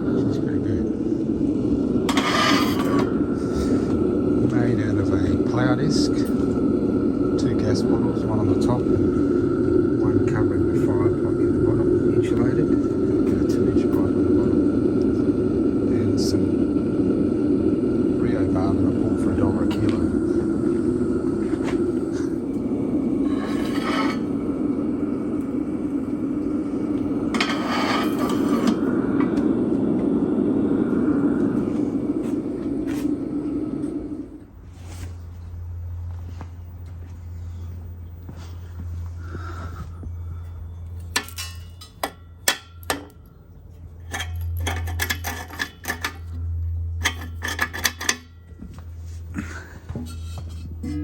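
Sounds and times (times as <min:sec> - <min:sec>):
forge air blower running: 0:00.0 - 0:51.0
steady low hum: 0:00.0 - 0:51.0
metallic clatter: 0:44.0 - 0:46.4.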